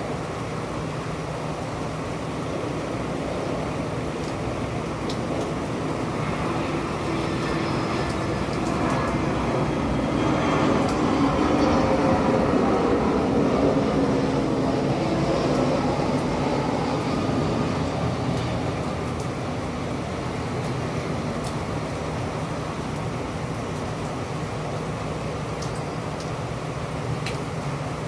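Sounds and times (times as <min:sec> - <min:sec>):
steady rain: 0:00.0 - 0:28.0
scattered drips: 0:05.0 - 0:12.2.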